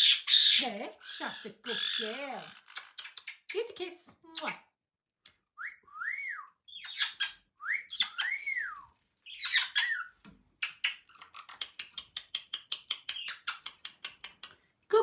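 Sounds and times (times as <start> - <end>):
parrot squawking: 0.0 - 3.2, 6.7 - 8.4, 9.3 - 12.0
parrot whistling: 5.6 - 10.1.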